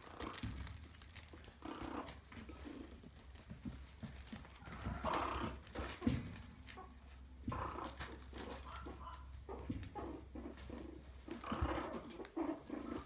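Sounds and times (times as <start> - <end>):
puppy whine: 0.0 - 13.0.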